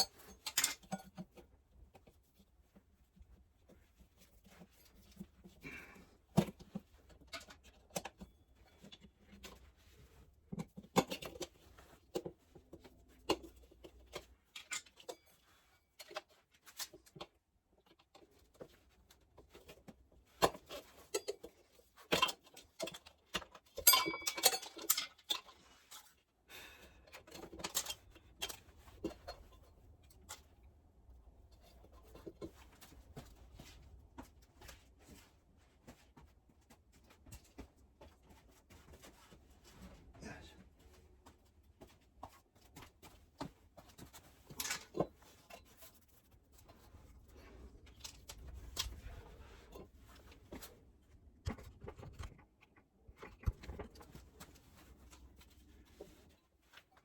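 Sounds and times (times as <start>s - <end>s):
tools clicking and scraping on wheel: 20.4s - 26.2s
metallic clatter and ringing: 23.8s - 25.1s.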